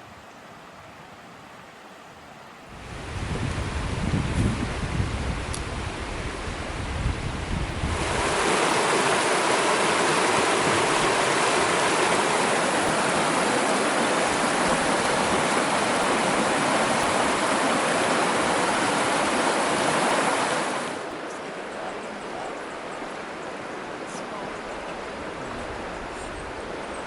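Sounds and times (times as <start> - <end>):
river water rushing: 0.0 - 27.0
wind rumble on microphone: 2.7 - 21.1.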